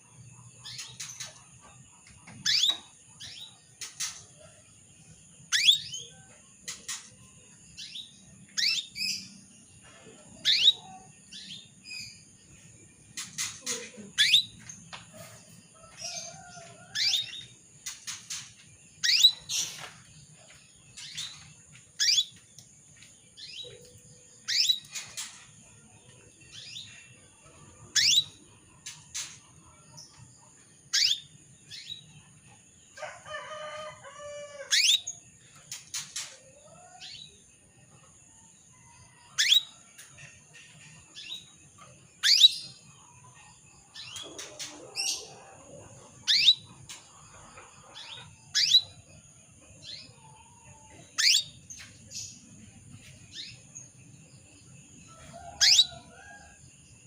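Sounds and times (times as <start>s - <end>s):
canary chirping: 2.4s - 4.3s, 5.4s - 7.1s, 7.8s - 9.4s, 10.4s - 12.4s, 13.2s - 14.8s, 15.9s - 19.9s, 20.5s - 22.4s, 23.4s - 25.4s, 27.9s - 29.3s, 30.9s - 32.1s, 34.7s - 36.3s, 39.3s - 39.8s, 41.1s - 43.3s, 46.2s - 49.1s, 51.2s - 52.5s, 55.2s - 56.1s.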